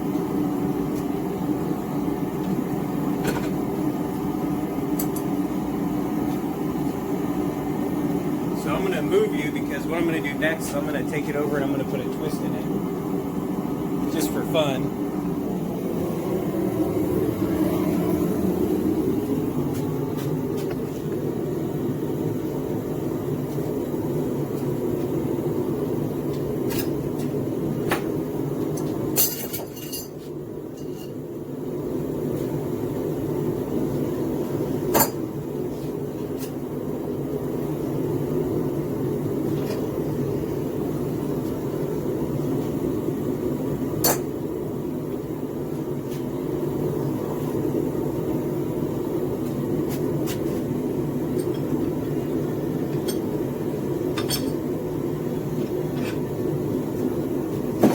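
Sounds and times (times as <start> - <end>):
gas forge burner rushing: 0.0 - 57.9.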